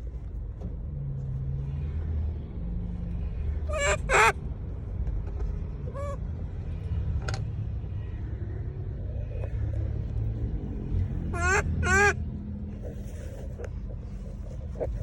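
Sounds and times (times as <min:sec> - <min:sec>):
steady low rumble: 0:00.0 - 0:15.0
monkey calls: 0:03.7 - 0:04.4, 0:05.9 - 0:06.2, 0:11.3 - 0:12.2.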